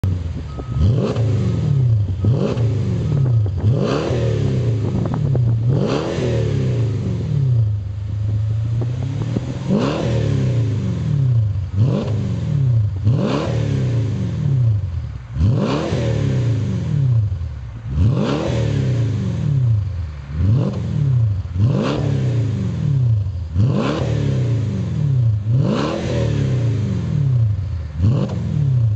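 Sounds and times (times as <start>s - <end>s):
car engine idling: 0.0s - 6.0s, 6.7s - 13.3s
car engine revving: 0.0s - 28.9s.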